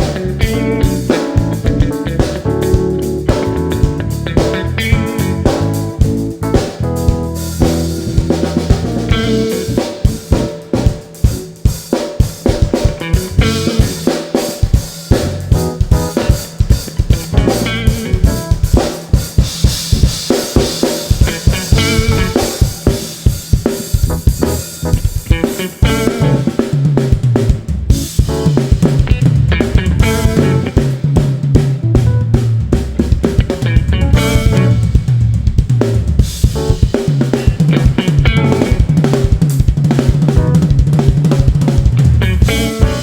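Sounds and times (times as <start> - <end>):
drum kit beat: 0.0 - 43.0
live band playing: 0.0 - 43.0.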